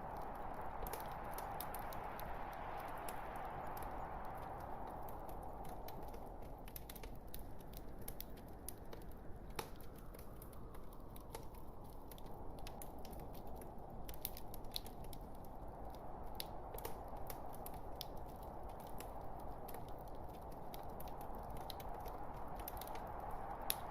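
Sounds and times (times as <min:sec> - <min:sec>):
burning wood crackling: 0:00.0 - 0:23.9
low rush of flames: 0:00.0 - 0:23.9.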